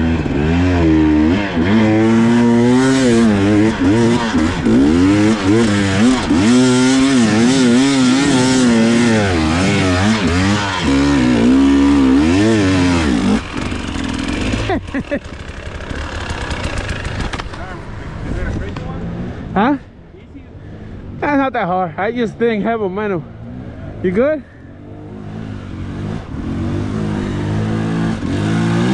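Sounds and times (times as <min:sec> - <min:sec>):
dirt bike engine revving: 0:00.0 - 0:17.6, 0:23.2 - 0:28.9.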